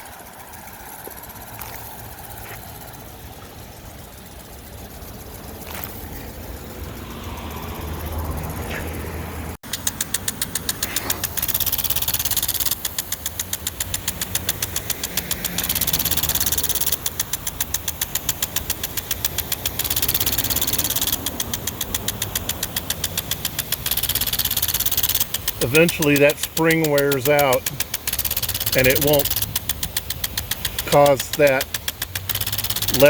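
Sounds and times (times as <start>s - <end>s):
sprinkler arm ticking: 0.0s - 9.0s, 9.6s - 33.0s
sprinkler spray hiss: 0.0s - 33.0s.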